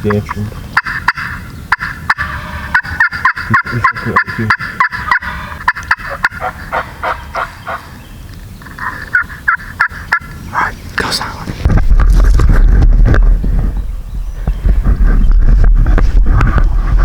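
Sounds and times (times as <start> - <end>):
turkey yelps: 0.8 - 7.9.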